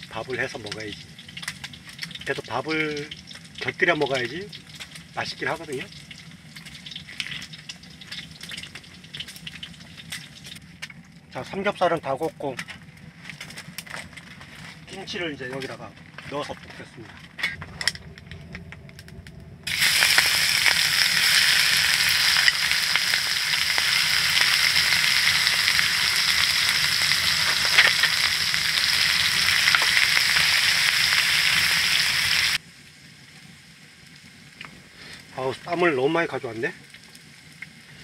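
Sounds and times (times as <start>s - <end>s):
food sizzling in a pan: 0.0s - 10.6s, 19.7s - 38.0s.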